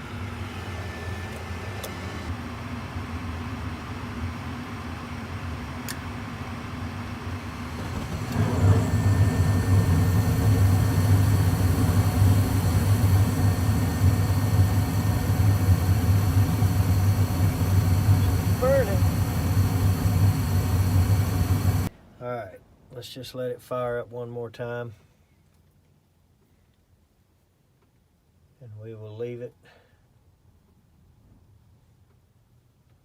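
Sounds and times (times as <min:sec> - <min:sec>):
furnace motor hum: 0:00.0 - 0:21.9
furnace burner rush: 0:05.9 - 0:21.9.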